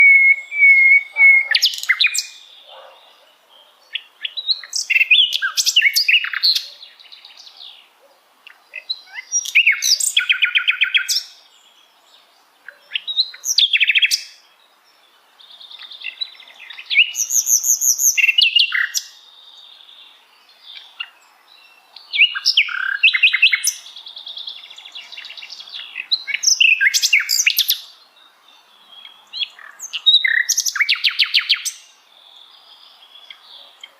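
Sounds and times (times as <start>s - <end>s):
flycatcher singing: 0.0s - 7.7s, 15.4s - 33.9s.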